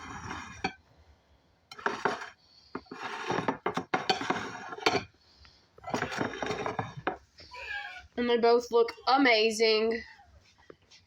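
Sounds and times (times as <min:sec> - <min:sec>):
cookware clinking and clattering: 0:01.7 - 0:05.2, 0:05.8 - 0:07.3.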